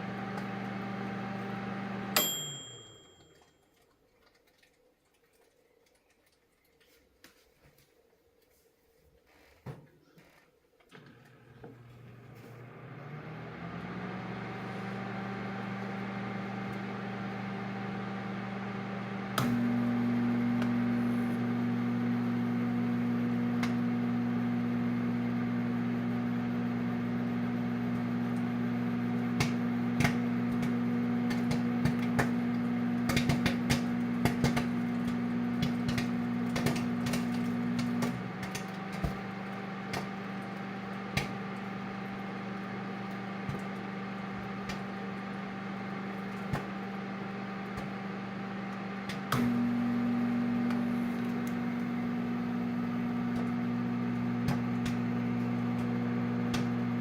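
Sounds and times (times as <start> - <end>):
microwave oven humming: 0.0 - 3.4, 10.9 - 57.0
popcorn popping: 29.2 - 49.8, 50.6 - 57.0.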